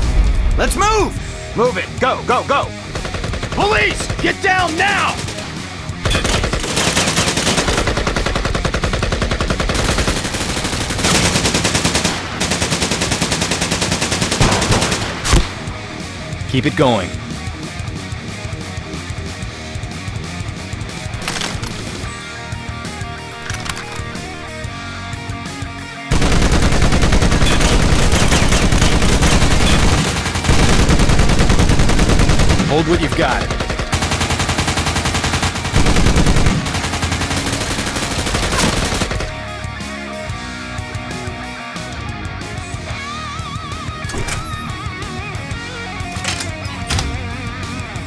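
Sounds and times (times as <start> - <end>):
background music: 0.0 - 48.0
automatic gunfire: 3.0 - 15.7, 26.1 - 39.4.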